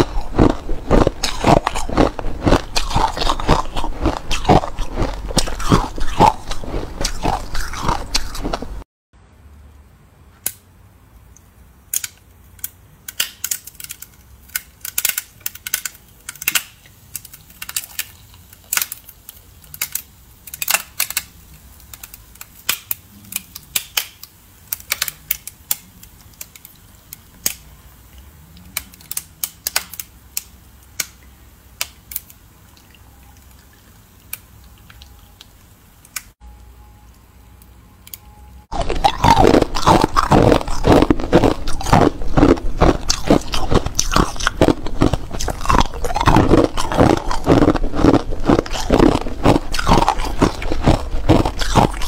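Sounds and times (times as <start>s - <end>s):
ice cracking and crunching: 0.0s - 8.8s, 38.7s - 52.0s.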